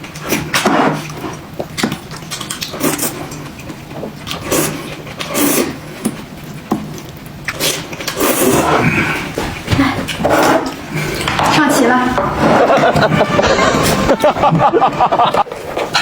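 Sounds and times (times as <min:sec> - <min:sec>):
dishes clinking and knocking: 0:09.4 - 0:16.0.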